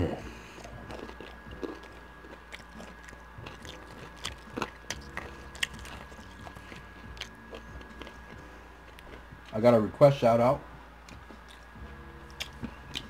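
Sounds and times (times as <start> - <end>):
person chewing food: 0.2 - 9.5, 11.0 - 13.0.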